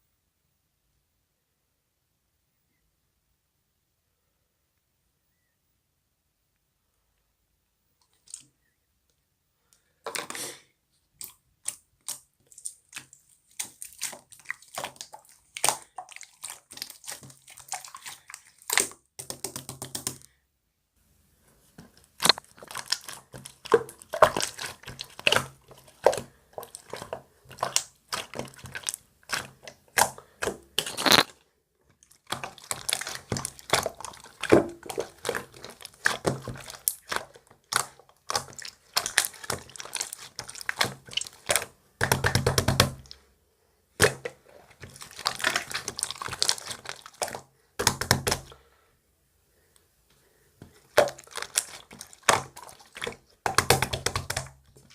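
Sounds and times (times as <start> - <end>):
slime squelching and popping: 11.2 - 20.2, 21.8 - 43.2, 44.0 - 48.5, 50.6 - 54.9.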